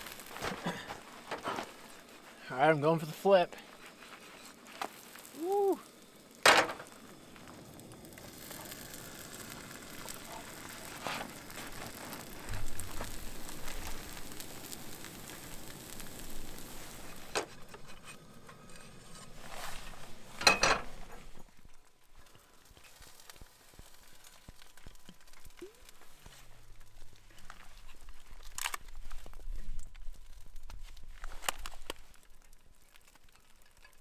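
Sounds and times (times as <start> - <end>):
food sizzling in a pan: 0.0 - 21.4, 22.2 - 26.8.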